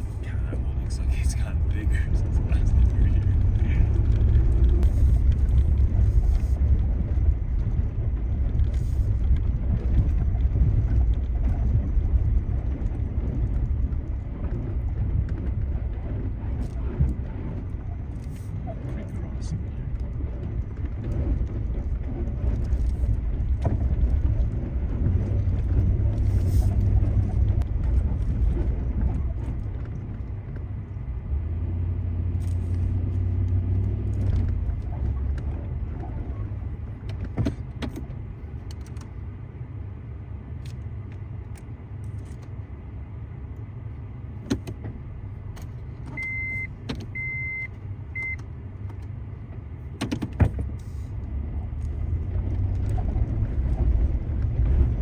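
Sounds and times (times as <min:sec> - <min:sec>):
vehicle engine at low speed: 0:00.0 - 0:55.0.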